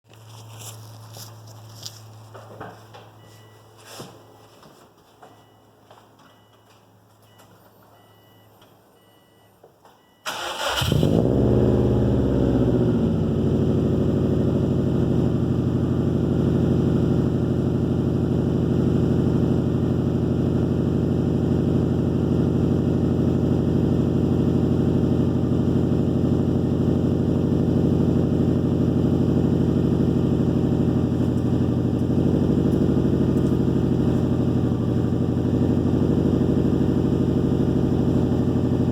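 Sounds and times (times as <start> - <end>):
car engine idling: 10.3 - 38.9.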